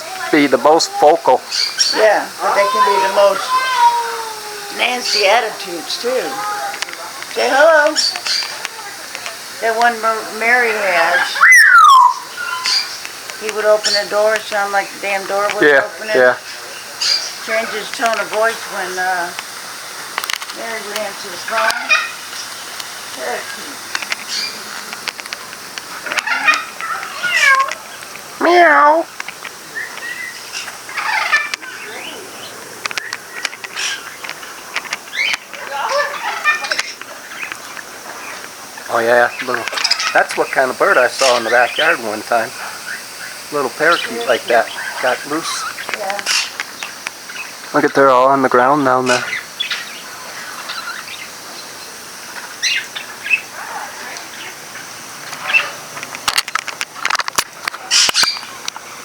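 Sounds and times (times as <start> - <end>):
parakeets chirping: 0.0 - 56.2, 56.9 - 59.0
parrots calling: 0.0 - 56.3, 56.9 - 59.0
wings flapping: 0.0 - 58.9
sharp clicks: 17.9 - 18.5, 19.3 - 28.3, 32.8 - 35.8.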